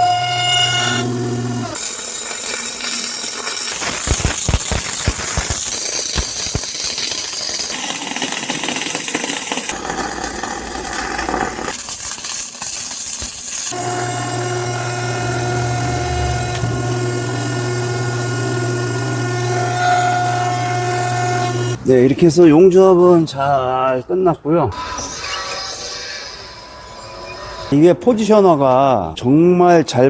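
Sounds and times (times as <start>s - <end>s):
arc welding crackling hiss: 1.8s - 8.4s
rapid sharp knocks: 3.9s - 6.8s
electrical hum: 13.8s - 21.8s.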